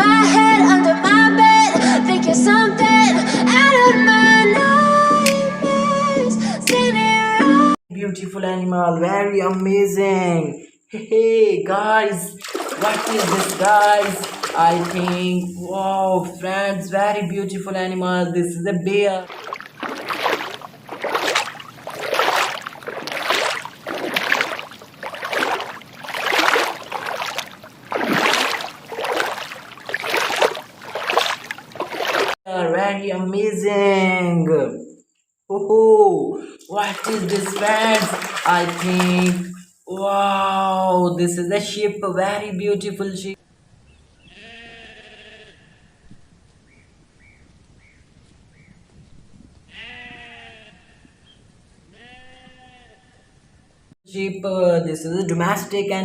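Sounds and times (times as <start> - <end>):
water sloshing: 12.3 - 16.6, 19.0 - 32.4, 36.6 - 39.8
sheep bleating: 44.3 - 46.0, 49.7 - 51.1, 52.0 - 53.2.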